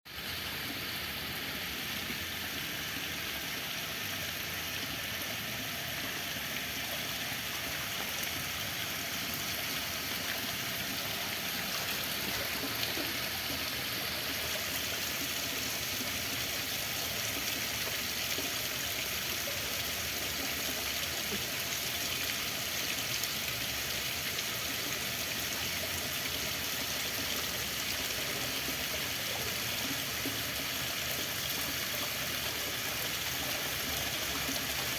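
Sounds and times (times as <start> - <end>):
running water: 0.1 - 34.9.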